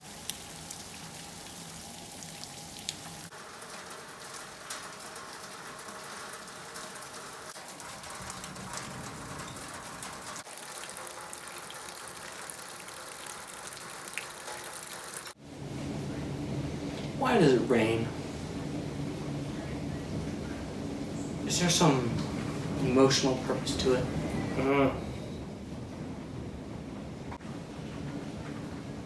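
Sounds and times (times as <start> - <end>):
steady rain falling: 0.0 - 29.0
sharp raindrop ticks: 0.1 - 15.4.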